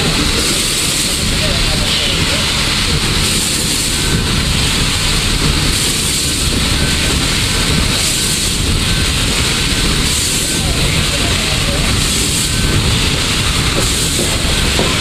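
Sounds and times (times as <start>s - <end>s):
high steam hiss: 0.0s - 15.0s
steam locomotive heavy rumble: 0.0s - 15.0s.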